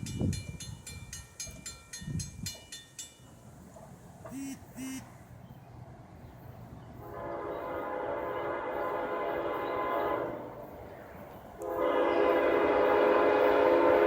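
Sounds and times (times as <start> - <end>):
locomotive horn blasts: 4.3 - 5.1, 7.0 - 10.7, 11.6 - 14.0.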